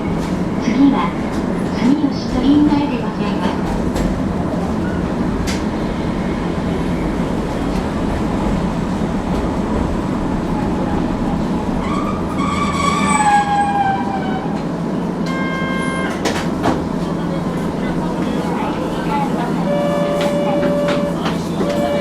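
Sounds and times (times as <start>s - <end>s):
tram rumbling on track: 0.0s - 22.0s
metallic wheel squeal: 11.8s - 14.5s.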